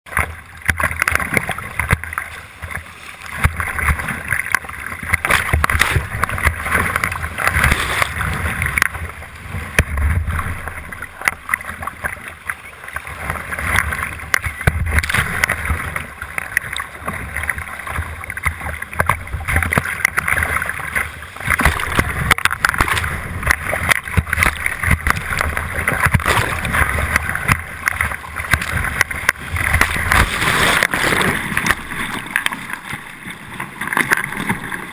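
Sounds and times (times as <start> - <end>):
water splashing: 0.1 - 34.9
whitewater rushing: 12.9 - 33.0.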